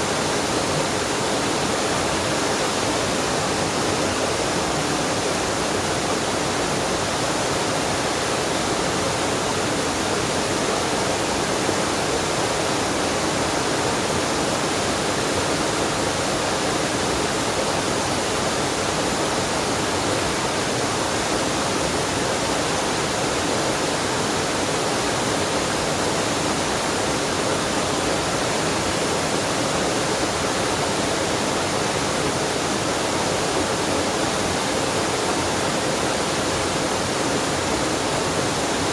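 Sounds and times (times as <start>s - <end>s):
water rushing: 0.0s - 38.9s.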